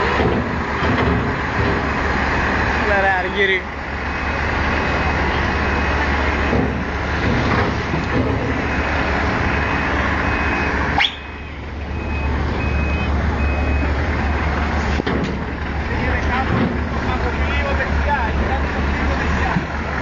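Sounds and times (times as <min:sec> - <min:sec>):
truck diesel engine running: 0:00.0 - 0:20.0
reversing alarm beeping: 0:04.1 - 0:06.8, 0:08.5 - 0:14.0.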